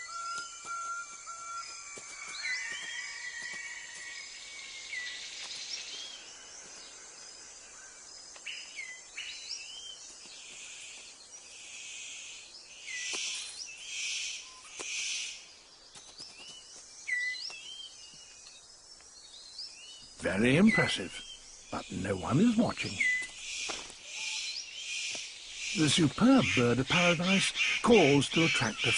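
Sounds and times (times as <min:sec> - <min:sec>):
whistled bird calls: 0:00.0 - 0:06.2, 0:16.4 - 0:18.6, 0:20.5 - 0:28.9.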